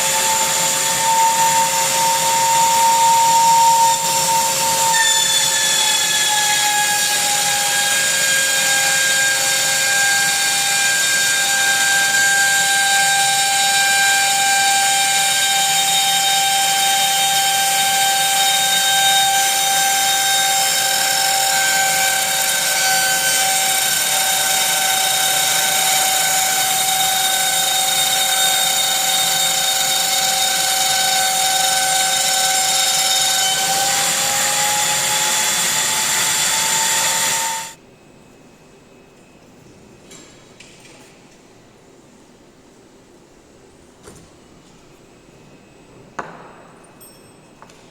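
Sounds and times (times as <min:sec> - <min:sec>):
router spindle high whine: 0:00.0 - 0:37.8.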